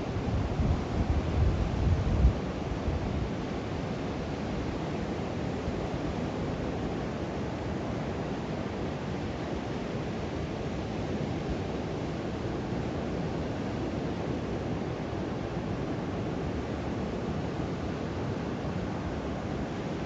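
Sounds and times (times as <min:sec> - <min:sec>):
wind on microphone: 0:00.0 - 0:03.5.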